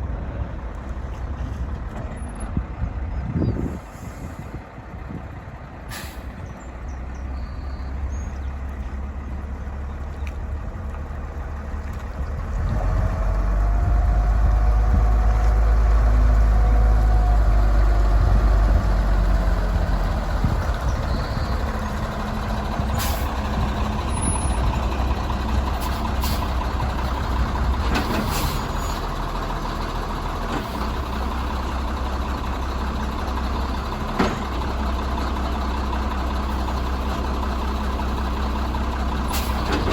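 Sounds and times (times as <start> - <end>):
diesel truck engine rumbling: 0.0 - 39.9
short sharp hisses: 5.9 - 6.3.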